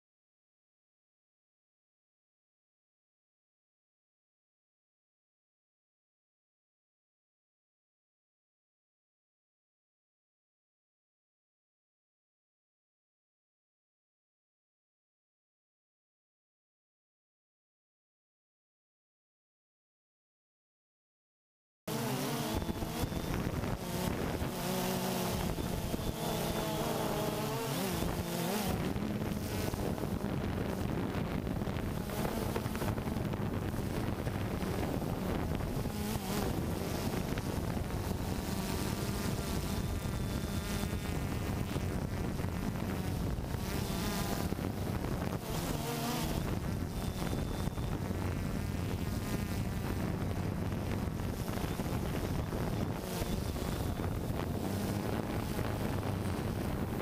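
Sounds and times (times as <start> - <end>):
drone propellers buzzing: 21.9 - 57.0
wind on microphone: 22.1 - 57.0.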